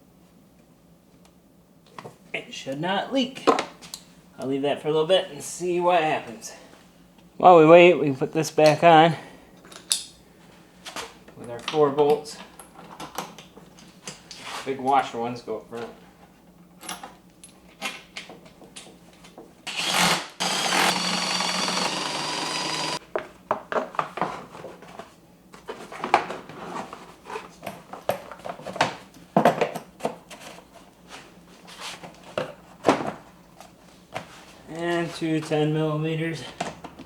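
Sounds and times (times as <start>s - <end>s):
cordless power driver running: 19.7s - 23.0s.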